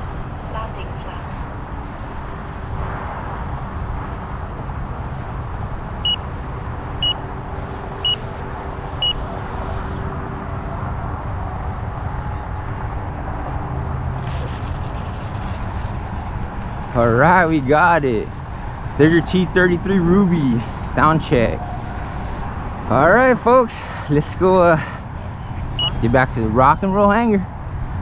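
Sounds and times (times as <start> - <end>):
short high beeps: 25.8 - 26.0.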